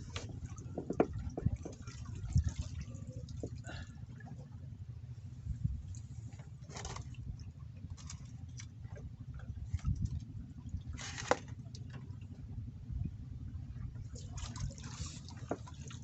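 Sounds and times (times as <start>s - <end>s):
water splashing and dripping: 0.0s - 3.8s, 13.9s - 16.0s
low rumble: 0.0s - 16.0s.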